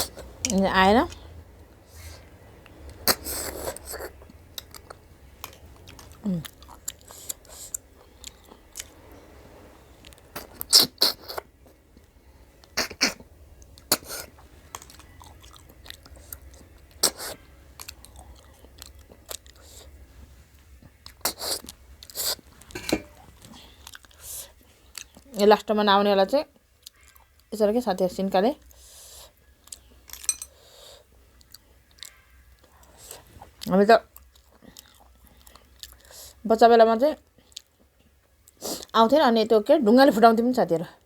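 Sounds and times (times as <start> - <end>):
chewing: 2.0 - 9.3, 10.0 - 20.0, 20.7 - 25.4, 26.8 - 27.5, 28.6 - 36.4, 37.2 - 38.9.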